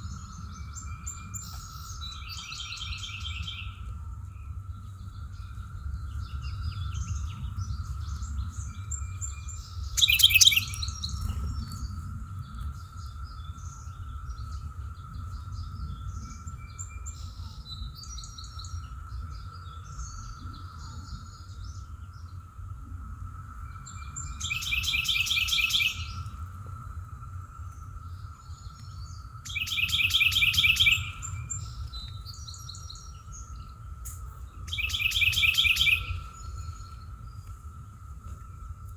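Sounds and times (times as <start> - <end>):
bird singing fast trill: 0.0 - 3.8, 5.0 - 14.7, 23.6 - 26.4, 27.8 - 37.4
birds chirping: 0.0 - 22.5, 23.5 - 38.9
low rumble: 3.8 - 18.1.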